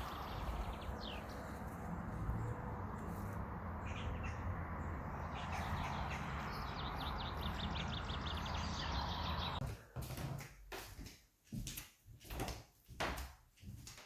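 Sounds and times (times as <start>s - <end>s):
outdoor background rush: 0.0s - 9.6s
small bird chirping: 3.8s - 9.6s.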